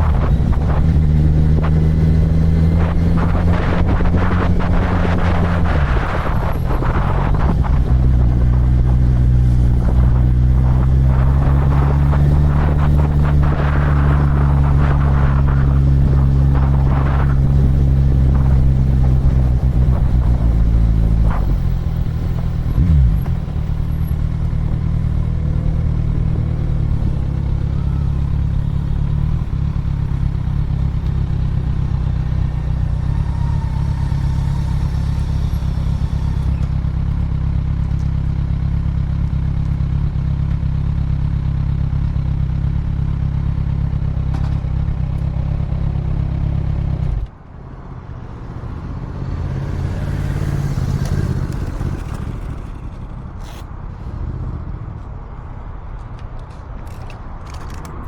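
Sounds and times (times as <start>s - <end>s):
wind rumble on microphone: 0.0s - 38.6s
motorcycle engine running: 0.0s - 47.4s, 49.6s - 55.1s.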